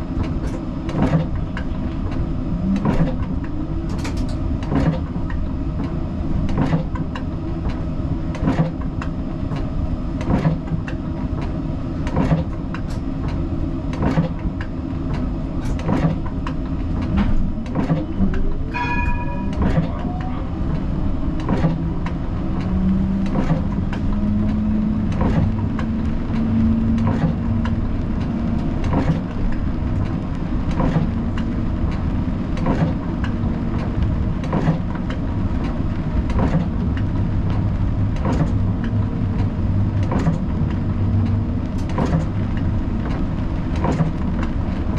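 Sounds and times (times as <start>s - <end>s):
tram rumbling on rails: 0.0s - 44.9s
short beep: 18.7s - 20.1s.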